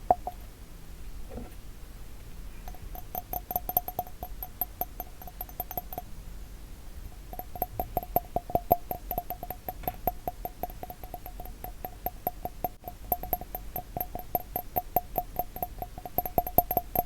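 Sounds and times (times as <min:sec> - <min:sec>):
glass bottle tapping: 0:00.0 - 0:00.4, 0:02.7 - 0:06.1, 0:07.4 - 0:17.0.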